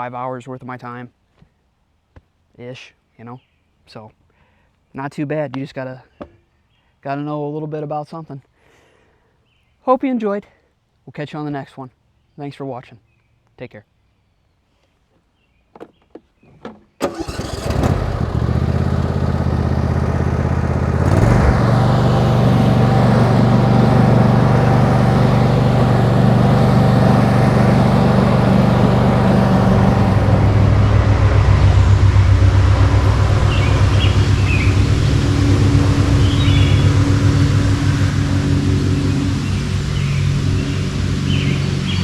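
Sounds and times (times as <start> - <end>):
lawn tractor engine running: 17.0 - 42.0.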